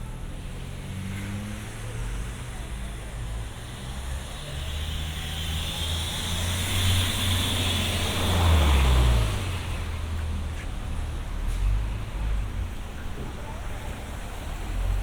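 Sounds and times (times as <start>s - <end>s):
vehicle passing on wet road: 3.8s - 10.4s.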